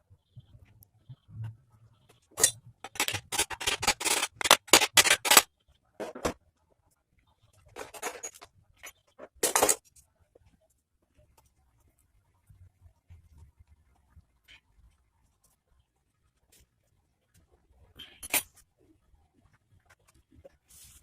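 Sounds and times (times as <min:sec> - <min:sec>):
metal tools clinking and scraping: 0:02.4 - 0:05.4, 0:07.8 - 0:09.8.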